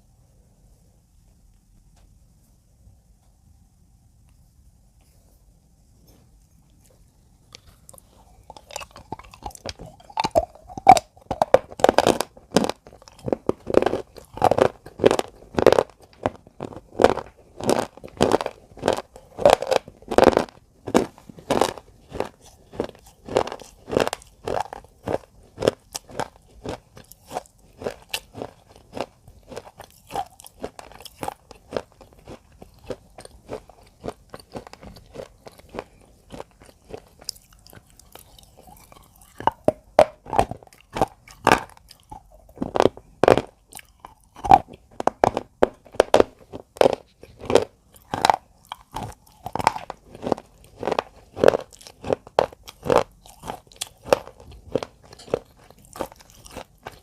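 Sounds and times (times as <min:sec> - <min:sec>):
irregular crunching: 0:06.0 - 0:57.0.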